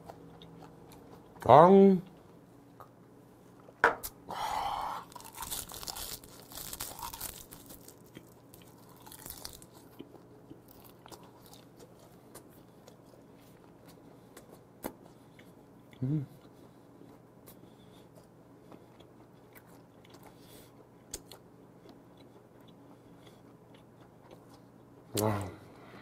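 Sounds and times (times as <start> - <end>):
soft chewing: 0.0 - 3.8, 5.0 - 25.8
crunchy bites: 5.0 - 12.5.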